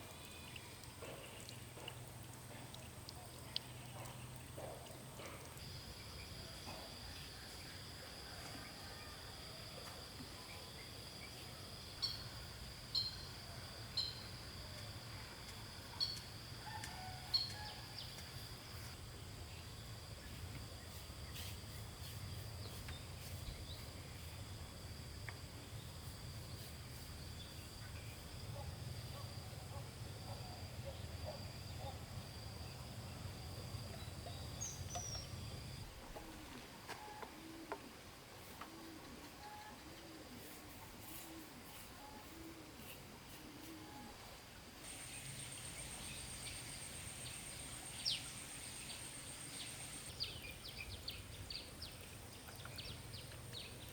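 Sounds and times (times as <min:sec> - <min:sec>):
high-pitched insect drone: 0:44.9 - 0:50.2.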